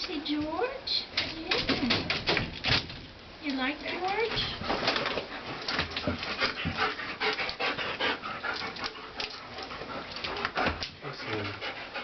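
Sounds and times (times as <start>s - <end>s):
dog panting: 4.2s - 12.0s.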